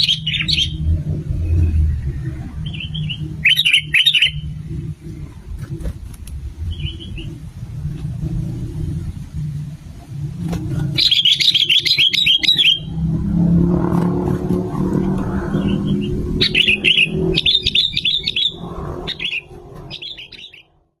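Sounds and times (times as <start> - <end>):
bird chattering song: 0.0 - 1.8, 2.5 - 4.6, 6.6 - 7.4, 10.8 - 13.0, 15.5 - 20.7
low rumble: 0.0 - 11.2, 12.3 - 20.4.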